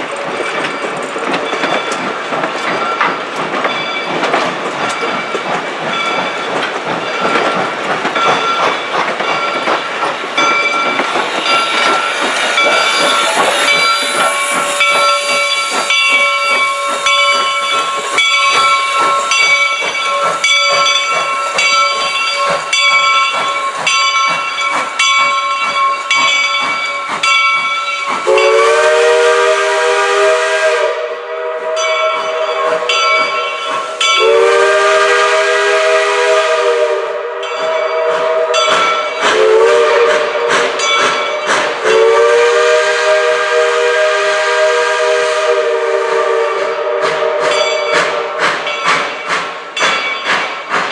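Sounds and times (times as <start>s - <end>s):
steam locomotive hissing steam: 0.0s - 50.9s
locomotive chime whistle blast: 11.4s - 24.2s, 27.8s - 48.3s.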